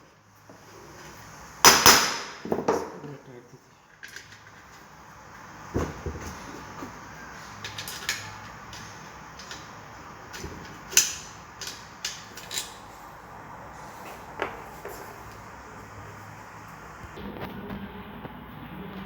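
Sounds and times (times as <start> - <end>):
metal parts and tools clicking: 7.6 - 9.7, 10.3 - 12.9.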